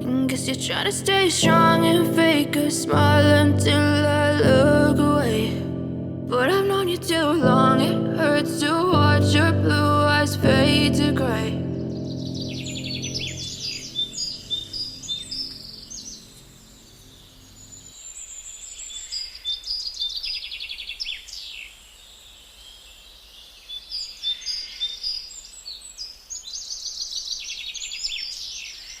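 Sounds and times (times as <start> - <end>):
songbirds chirping and trilling: 11.8 - 29.0.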